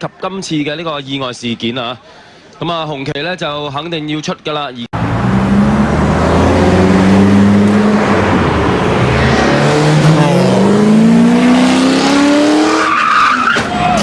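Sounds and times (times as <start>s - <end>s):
race car engine accelerating: 5.0s - 13.1s.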